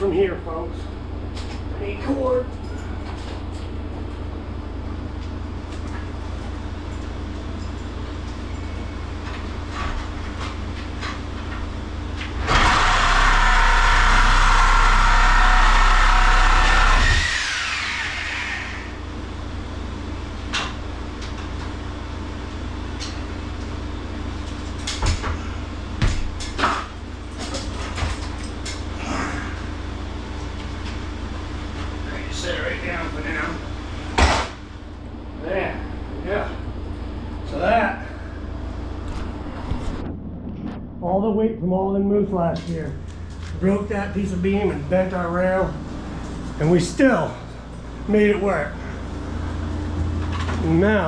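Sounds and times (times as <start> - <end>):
low hum: 0.0 - 51.0
angle grinder on metal: 12.4 - 18.9.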